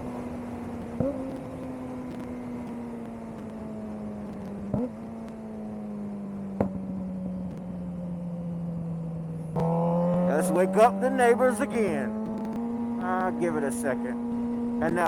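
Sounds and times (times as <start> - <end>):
motorcycle engine running: 6.2 - 15.0
sharp engine blips: 10.2 - 14.2.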